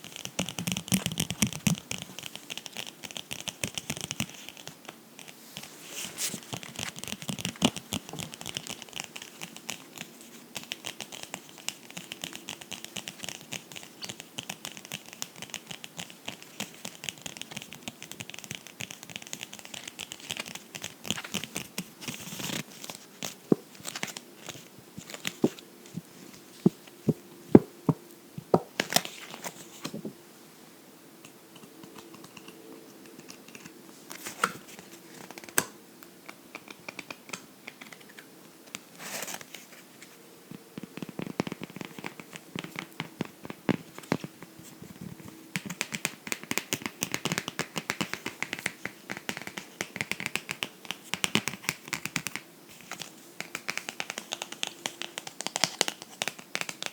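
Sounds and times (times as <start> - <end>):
scratching on a book: 0.0 - 27.6, 40.8 - 56.9.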